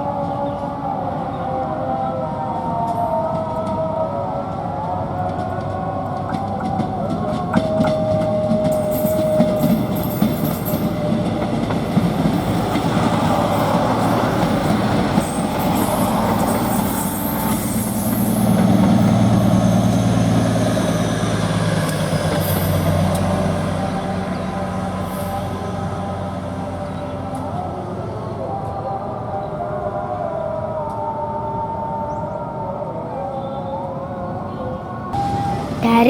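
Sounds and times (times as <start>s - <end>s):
train wheels clicking over rail joints: 5.4s - 23.8s
diesel engine low hum: 11.0s - 32.3s, 33.8s - 36.0s.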